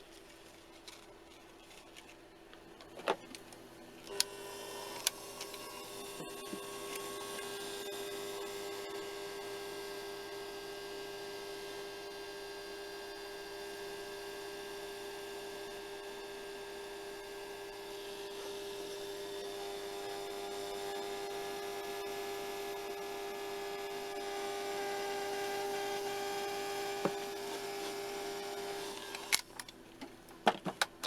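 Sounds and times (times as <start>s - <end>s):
hair dryer humming: 4.1s - 9.4s, 16.2s - 29.4s.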